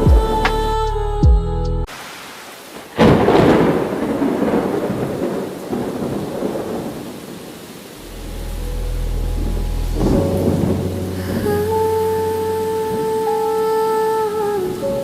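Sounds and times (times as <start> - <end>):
rain hiss: 1.8 - 15.0
thunderclap rumbling: 2.7 - 13.1
low steady drone: 8.0 - 12.7.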